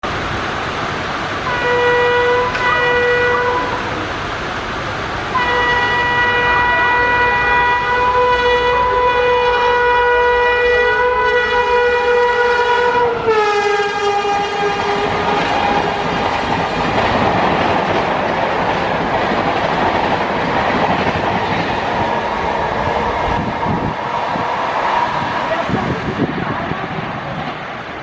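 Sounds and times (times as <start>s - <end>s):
heavy rain hissing: 0.0s - 9.1s
train horn blasts: 1.4s - 4.0s, 5.3s - 16.0s.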